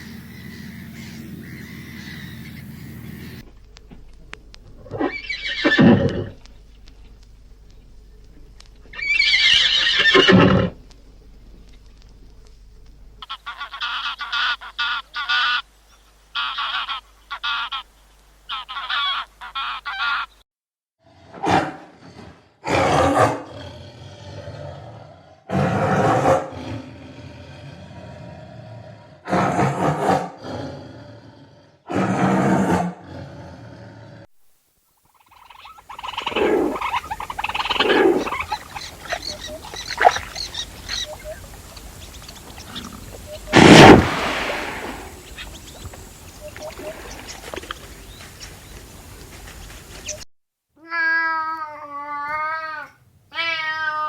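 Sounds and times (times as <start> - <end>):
busy noisy animal calls: 0.0 - 3.4, 4.8 - 6.5, 8.9 - 10.8, 13.2 - 15.7, 16.3 - 20.4, 35.1 - 50.2
loud animal calls: 8.9 - 10.8, 35.1 - 48.6
short repeated pitched animal calls: 35.1 - 48.5.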